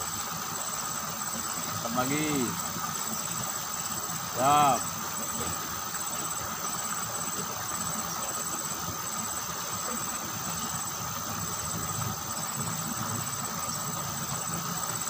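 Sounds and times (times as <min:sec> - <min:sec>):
insects trilling: 0:00.0 - 0:15.0
water running down a ditch: 0:00.0 - 0:15.0.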